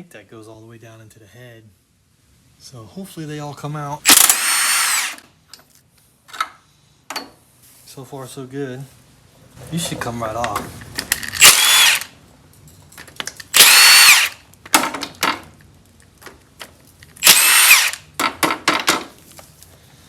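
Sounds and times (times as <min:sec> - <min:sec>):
cordless power tool whirring: 0:04.1 - 0:05.2, 0:11.3 - 0:12.1, 0:13.5 - 0:14.4, 0:17.2 - 0:18.1
light metallic clicks and rattles: 0:12.5 - 0:13.5.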